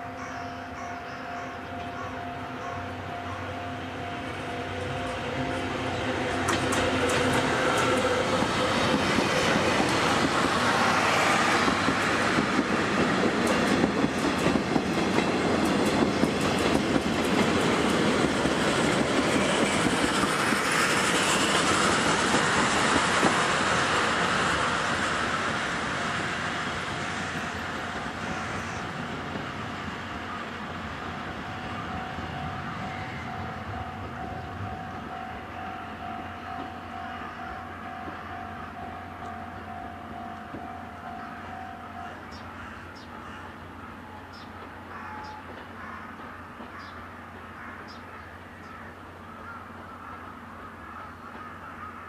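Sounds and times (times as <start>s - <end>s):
steam train passing: 0.0s - 52.0s
wheels clacking over rail joints: 5.2s - 30.2s.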